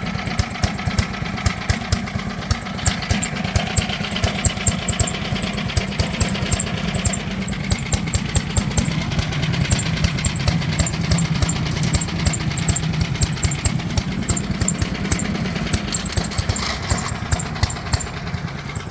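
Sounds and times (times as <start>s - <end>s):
rapid clatter of knocks: 0.0s - 18.9s
wood chipper engine running: 0.0s - 18.9s.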